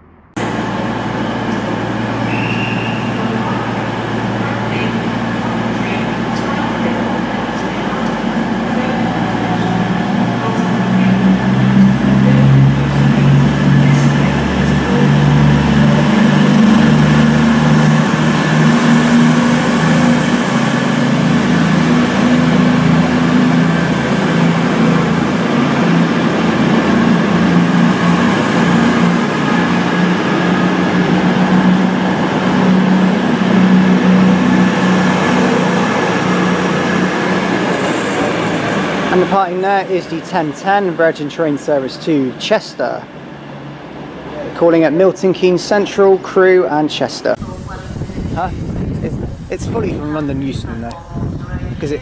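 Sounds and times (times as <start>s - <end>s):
train diesel engines droning: 0.0s - 52.0s.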